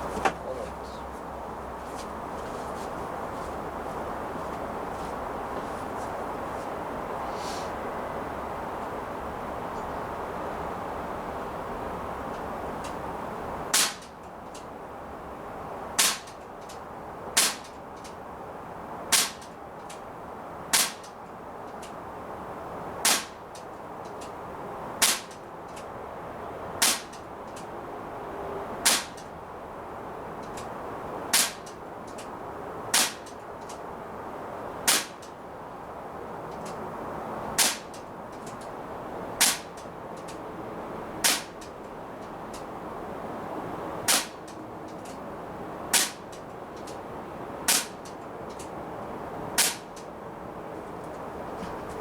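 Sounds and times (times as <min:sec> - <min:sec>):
bb pistol firing sharp cracks: 0:13.7 - 0:14.2, 0:16.0 - 0:16.8, 0:17.4 - 0:17.8, 0:19.1 - 0:19.6, 0:20.7 - 0:21.2, 0:23.0 - 0:23.6, 0:25.0 - 0:25.8, 0:26.8 - 0:27.3, 0:28.8 - 0:29.3, 0:31.3 - 0:31.8, 0:32.9 - 0:33.4, 0:34.8 - 0:35.3, 0:37.6 - 0:38.5, 0:39.4 - 0:40.4, 0:41.2 - 0:41.7, 0:44.1 - 0:44.5, 0:46.0 - 0:46.4, 0:47.7 - 0:48.7, 0:49.6 - 0:50.0.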